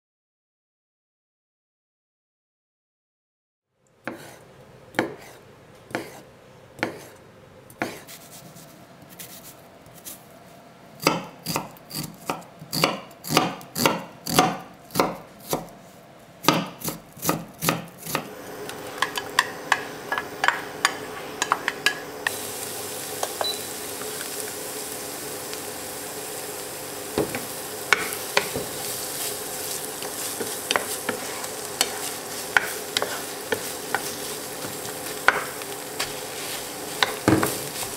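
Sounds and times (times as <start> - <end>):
knife chopping on cutting board: 4.1 - 6.2, 6.8 - 7.2, 7.8 - 8.1, 11.0 - 15.8, 16.4 - 18.3, 27.1 - 36.3, 37.0 - 37.9
food sizzling in a frying pan: 18.2 - 37.9
utensil stirring clicks: 18.6 - 22.0.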